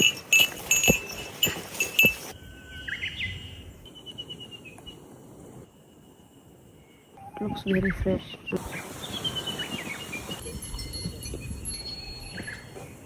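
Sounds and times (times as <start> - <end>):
small bell jingling: 0.0 - 2.4, 10.4 - 12.8
forest ambience: 0.0 - 13.0
bird singing high whistled notes: 2.4 - 4.8.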